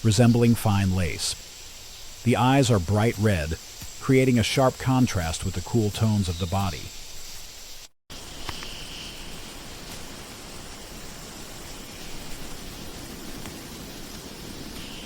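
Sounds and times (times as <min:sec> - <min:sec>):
even outdoor hiss: 0:00.0 - 0:15.0
faint insect-like buzzing: 0:06.0 - 0:15.0.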